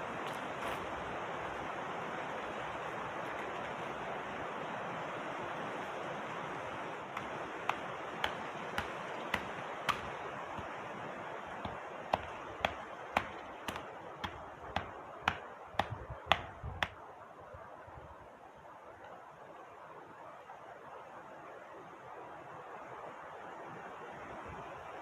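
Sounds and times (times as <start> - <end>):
rushing water: 0.0 - 16.6
sharp taps: 7.2 - 10.8, 11.5 - 17.0.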